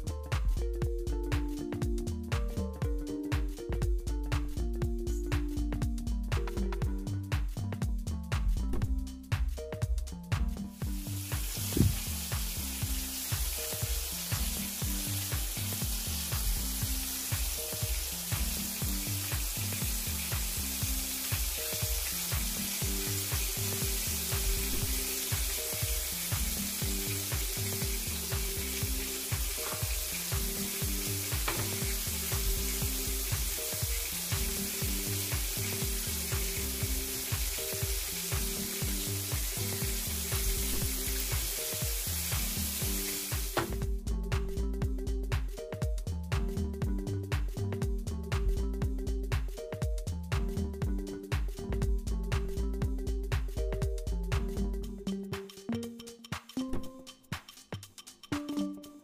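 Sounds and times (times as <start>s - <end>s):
background music with beat: 0.0s - 59.0s
oil sizzling in a pan: 10.7s - 43.9s.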